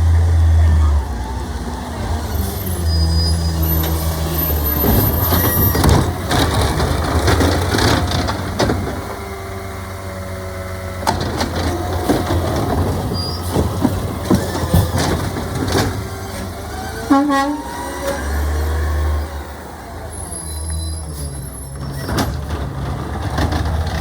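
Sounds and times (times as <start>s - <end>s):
garbage truck engine rumble: 0.0s - 24.0s
knocks and clanks: 3.8s - 9.5s, 11.0s - 16.6s, 21.8s - 24.0s.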